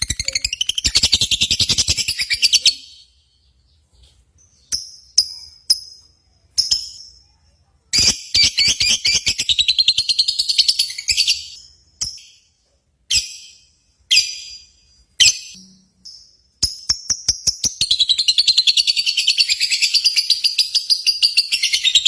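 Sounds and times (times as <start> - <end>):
chattering trill of chirps: 0.0 - 3.2
lovebirds chirping: 0.0 - 22.0.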